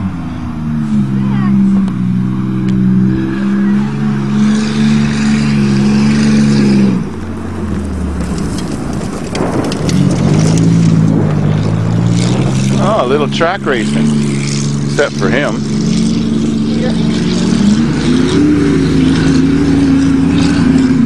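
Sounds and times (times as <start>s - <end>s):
car engines racing at high revs: 0.0s - 21.0s
tyres throwing dirt: 2.7s - 15.8s.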